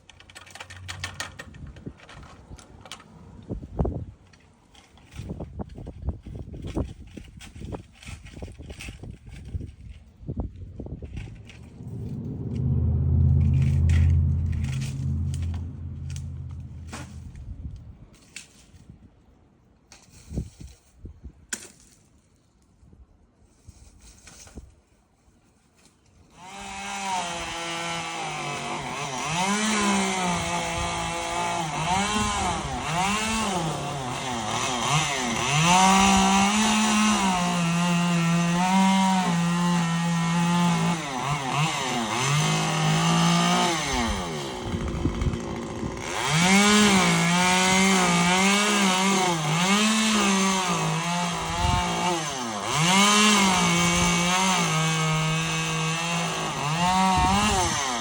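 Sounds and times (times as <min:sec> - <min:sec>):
chainsaw revving and cutting: 0:26.4 - 0:58.0.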